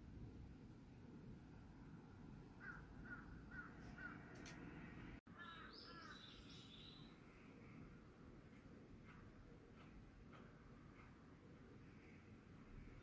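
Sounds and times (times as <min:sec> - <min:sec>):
distant crow cawing: 0:02.6 - 0:04.3, 0:05.3 - 0:06.3
bird chirping: 0:05.3 - 0:07.2.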